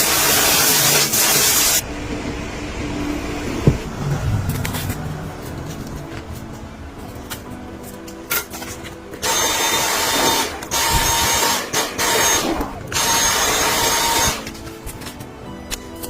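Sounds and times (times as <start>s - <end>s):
power tool whining: 9.2s - 14.6s.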